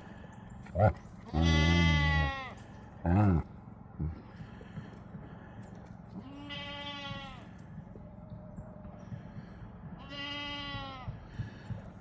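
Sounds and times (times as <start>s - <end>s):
goat bleating: 1.3s - 2.6s, 6.2s - 7.4s, 10.0s - 11.1s.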